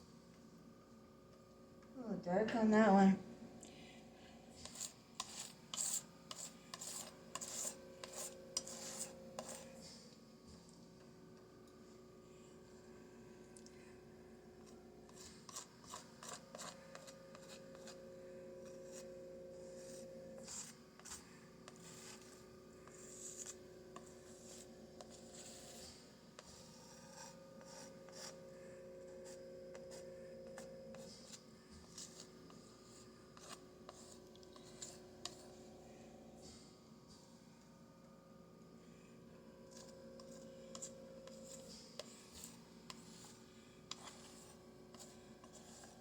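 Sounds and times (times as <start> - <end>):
steady low hum: 0.1 - 46.0
palette knife scraping canvas: 4.6 - 10.1, 14.6 - 18.0, 18.6 - 28.4, 29.2 - 35.4, 39.7 - 46.0.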